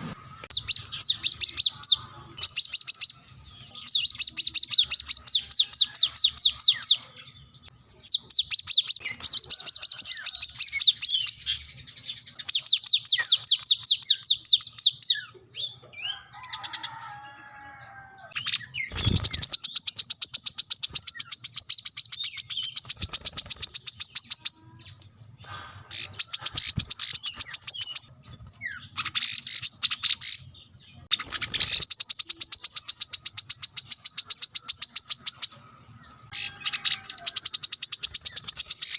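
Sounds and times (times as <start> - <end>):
bird singing high trills: 0.0 - 24.9.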